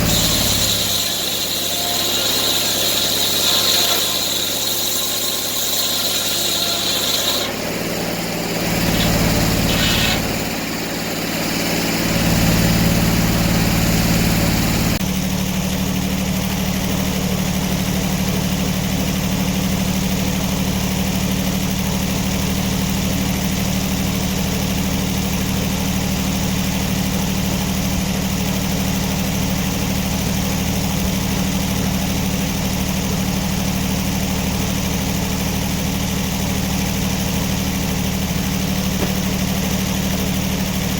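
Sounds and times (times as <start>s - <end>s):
engine running and revving: 0.0s - 0.8s, 7.6s - 15.0s
high squeal: 0.0s - 7.6s, 8.6s - 10.5s.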